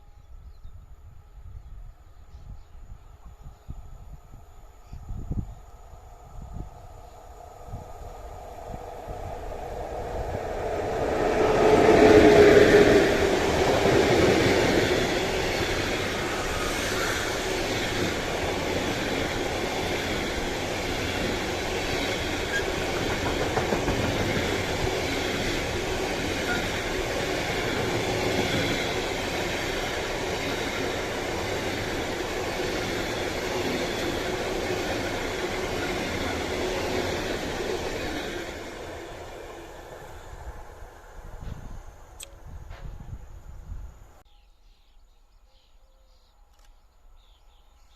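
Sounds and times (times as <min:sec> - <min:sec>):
train passing: 0:04.0 - 0:44.2
rail cars clickety-clack: 0:08.6 - 0:40.4.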